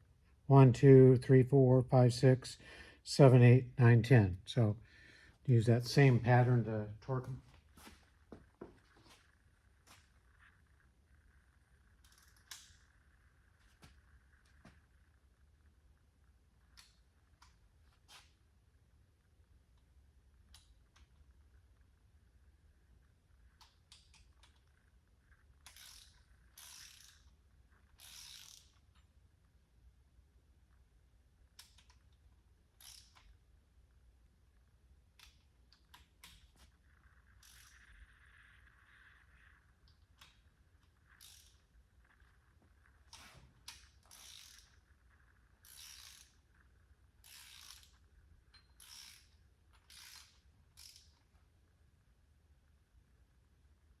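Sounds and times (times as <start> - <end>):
ratchet wrench clicking: 25.6 - 28.9, 32.8 - 33.3, 37.4 - 38.1, 41.1 - 41.7, 43.1 - 44.8, 45.6 - 46.4, 47.2 - 51.2.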